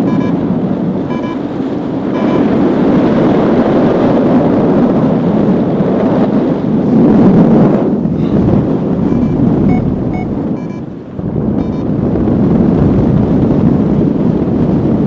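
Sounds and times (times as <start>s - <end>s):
short beeps: 0.0s - 0.4s, 1.0s - 1.5s, 2.1s - 2.6s, 9.0s - 10.9s, 11.6s - 11.9s
strong wind roaring over microphone: 0.0s - 15.0s.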